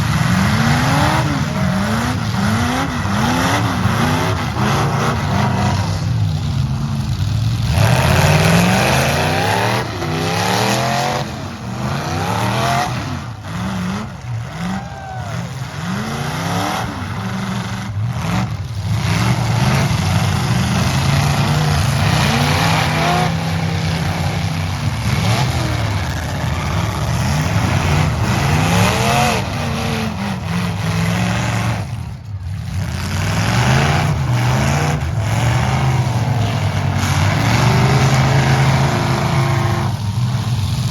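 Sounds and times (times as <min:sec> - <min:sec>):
truck engines revving hard: 0:00.0 - 0:40.9.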